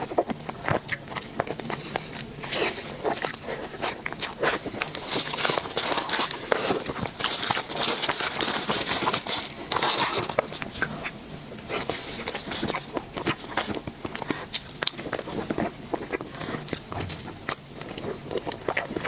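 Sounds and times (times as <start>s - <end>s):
chewing with mouth clicks: 0.0s - 19.0s.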